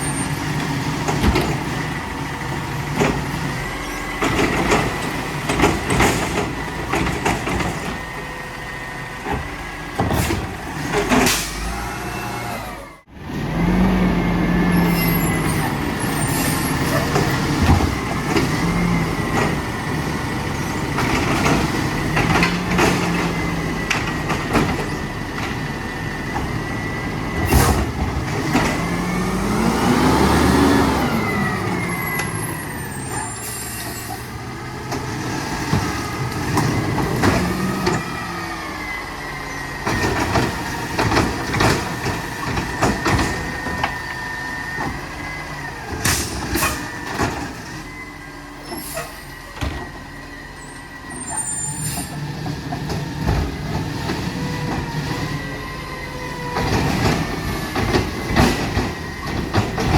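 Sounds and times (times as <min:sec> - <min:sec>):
garbage truck engine revving: 0:00.0 - 0:59.9
sharp knocks and clunks: 0:04.2 - 0:08.2.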